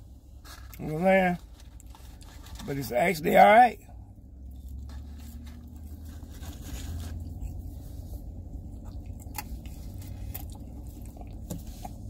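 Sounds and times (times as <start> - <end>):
person chewing food: 4.4 - 12.0.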